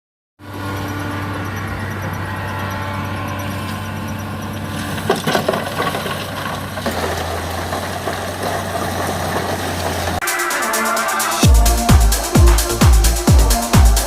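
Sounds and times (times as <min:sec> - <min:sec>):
diesel engine running: 0:00.4 - 0:14.0
electronic dance music: 0:10.2 - 0:14.0.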